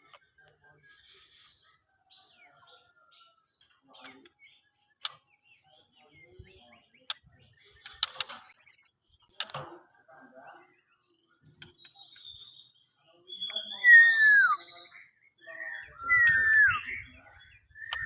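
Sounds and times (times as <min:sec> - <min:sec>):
sharp click-like bird calls: 0:05.0 - 0:05.2, 0:07.0 - 0:08.6, 0:16.2 - 0:16.6
bird chirps and whistles: 0:13.3 - 0:15.1, 0:15.8 - 0:18.0.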